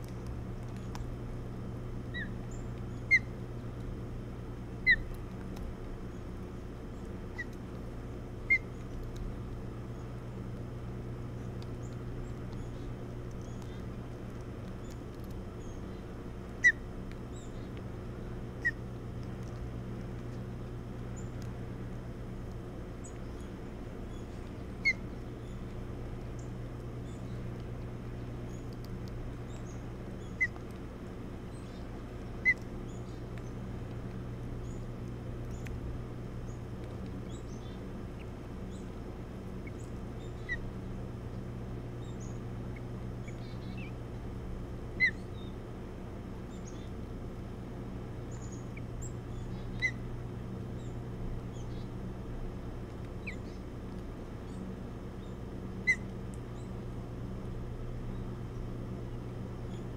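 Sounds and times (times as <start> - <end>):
low steady hum: 0.0 - 59.9
bird chirps: 2.1 - 3.3, 4.8 - 5.1, 8.4 - 8.9, 23.0 - 25.7, 29.4 - 30.6, 39.6 - 40.7, 42.0 - 44.0, 45.0 - 45.6, 46.5 - 47.0, 48.3 - 50.0, 50.8 - 51.9, 53.2 - 53.6, 54.4 - 56.8.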